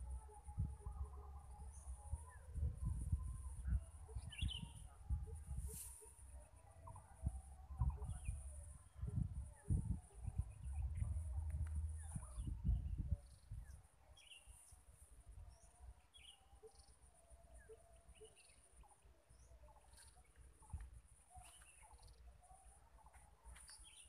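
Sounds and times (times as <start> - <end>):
bird chirps: 2.9 - 5.1, 15.5 - 24.0.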